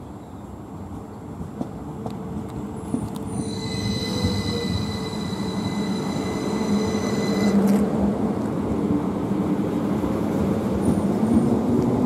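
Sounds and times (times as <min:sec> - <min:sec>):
second train arriving rumble: 0:00.0 - 0:12.0
train rumble: 0:00.4 - 0:12.0
high-pitched train squeal: 0:02.9 - 0:07.9.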